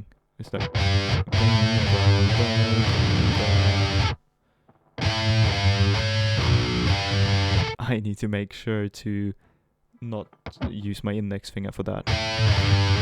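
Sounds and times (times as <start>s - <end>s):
distorted electric guitar riff: 0.6s - 4.2s, 5.0s - 7.8s, 10.4s - 10.8s, 12.0s - 13.0s.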